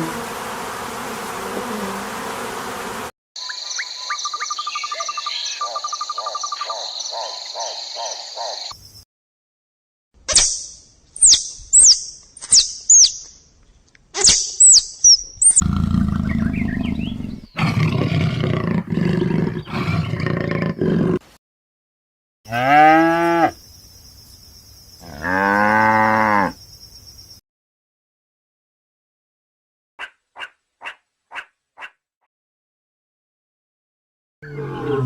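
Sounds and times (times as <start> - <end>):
high falling chirps: 10.3 - 13.4, 14.2 - 15.6
low rough roar-like calling: 15.6 - 21.2, 34.4 - 35.0.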